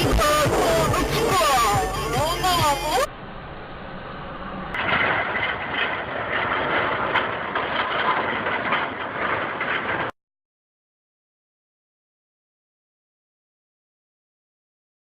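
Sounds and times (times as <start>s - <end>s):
vehicle engine and road noise: 0.0s - 10.2s.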